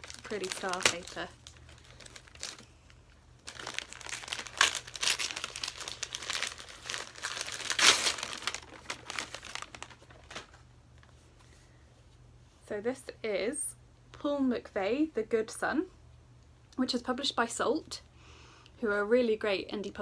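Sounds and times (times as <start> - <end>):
wrapping paper crinkling: 0.0 - 11.2.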